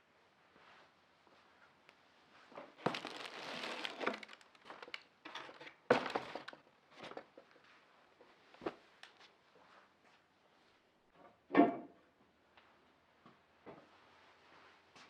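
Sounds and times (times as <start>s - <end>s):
crinkling and rustling: 2.6s - 7.6s.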